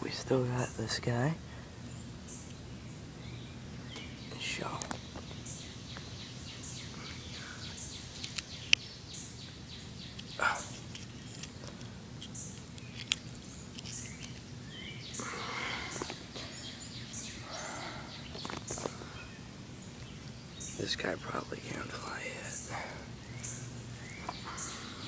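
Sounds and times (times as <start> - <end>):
bird chirping: 0.0 - 25.0
low background hum: 0.0 - 25.0
rustling: 10.7 - 17.6.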